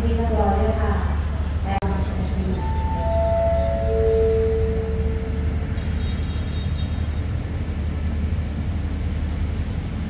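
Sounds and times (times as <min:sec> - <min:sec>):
diesel train engines idling: 0:00.0 - 0:10.0
descending station chime: 0:02.6 - 0:05.7.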